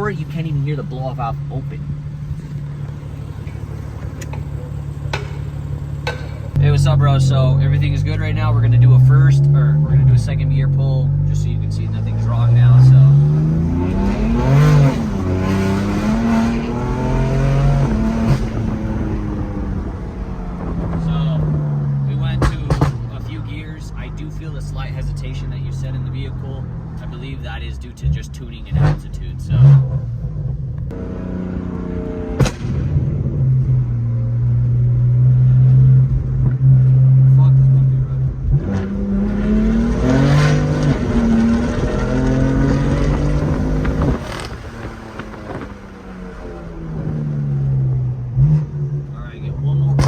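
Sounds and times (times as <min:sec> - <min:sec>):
car engine at full throttle: 0:00.0 - 0:50.0
sharp bang: 0:32.3 - 0:33.3.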